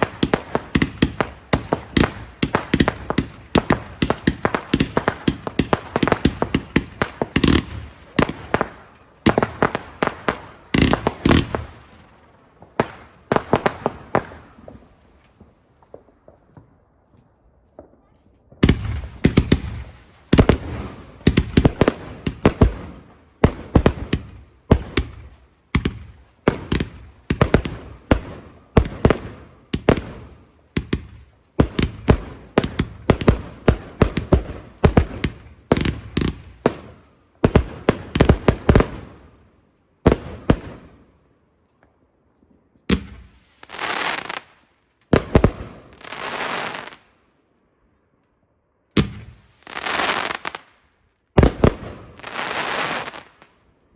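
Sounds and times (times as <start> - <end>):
fireworks bangs: 0.0 - 12.0, 17.7 - 39.2, 51.4 - 53.4
crackling firework bursts: 0.0 - 16.7, 18.6 - 39.2, 42.9 - 47.2, 49.0 - 53.6.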